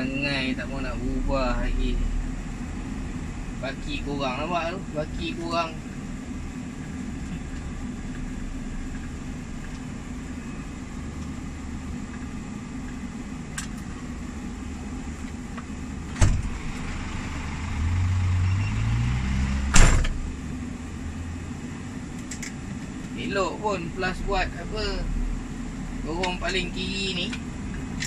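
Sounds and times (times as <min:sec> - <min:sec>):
lorry diesel engine revving: 0:16.4 - 0:20.3.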